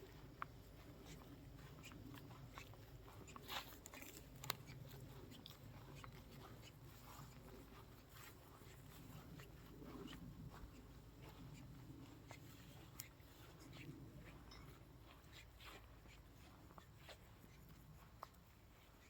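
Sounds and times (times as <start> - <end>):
small crackles and clicks: 1.9 - 6.6.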